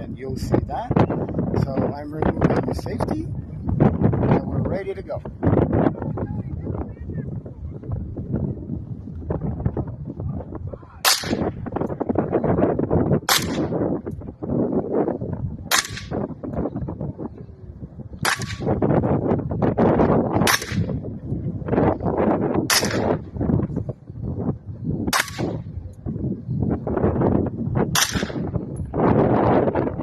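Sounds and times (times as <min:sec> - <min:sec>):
wind buffeting microphone: 0:00.0 - 0:30.0
suppressed rifle shots: 0:11.1 - 0:11.5, 0:13.3 - 0:13.8, 0:15.7 - 0:16.2, 0:18.2 - 0:18.7, 0:20.4 - 0:20.9, 0:22.7 - 0:23.2, 0:25.1 - 0:25.6, 0:28.0 - 0:28.5.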